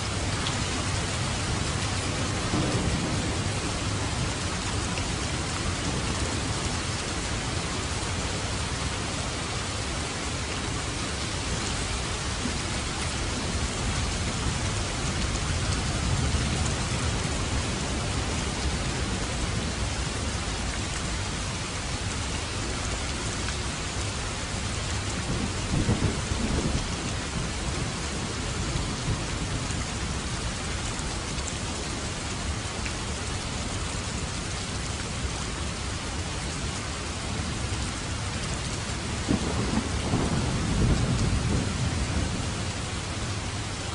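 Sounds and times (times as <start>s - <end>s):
heavy rain falling: 0.0s - 43.9s
low thunder rumbles: 0.1s - 7.9s, 25.1s - 30.3s, 39.0s - 43.5s.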